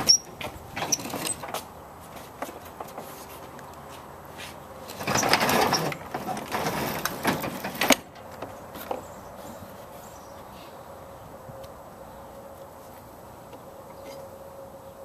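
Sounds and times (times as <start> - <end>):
garage door rolling and clattering: 0.0 - 1.7, 4.9 - 8.4.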